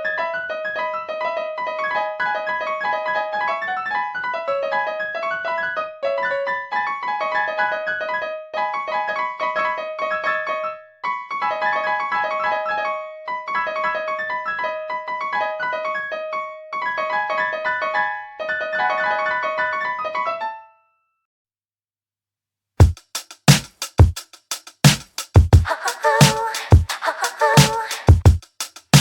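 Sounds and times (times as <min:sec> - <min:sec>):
hard drum hits: 0:22.8 - 0:26.9, 0:27.6 - 0:29.0.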